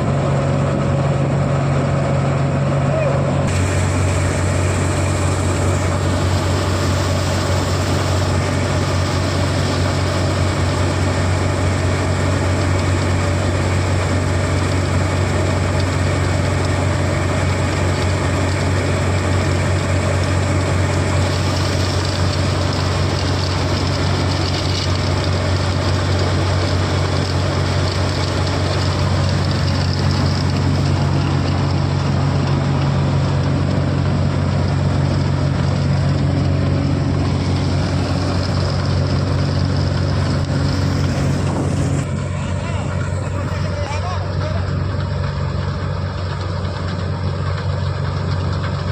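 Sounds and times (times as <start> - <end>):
diesel engine droning: 0.0 - 48.9
machinery hiss: 3.5 - 12.4.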